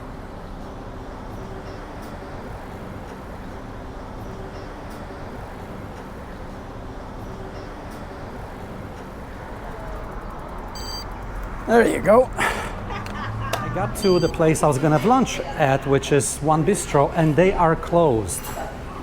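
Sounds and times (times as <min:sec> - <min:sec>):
faint steady hum: 0:10.8 - 0:13.3.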